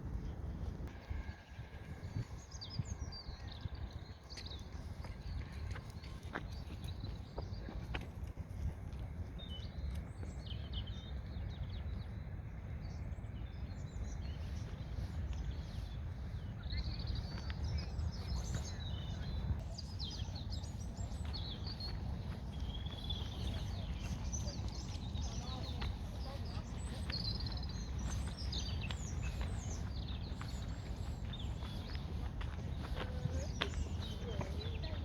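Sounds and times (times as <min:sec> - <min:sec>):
steady low rumble: 0:00.0 - 0:35.0
songbirds chirping and trilling: 0:00.1 - 0:35.0.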